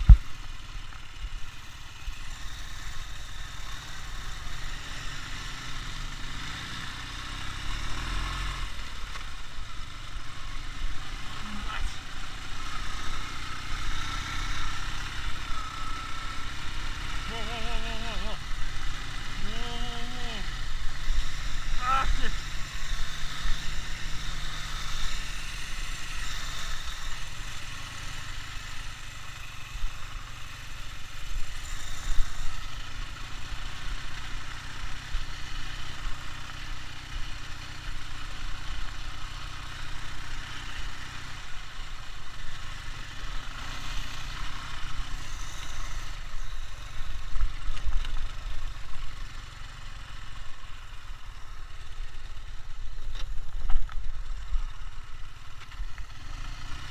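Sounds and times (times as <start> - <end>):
motorcycle engine running at low revs: 0.0 - 56.9.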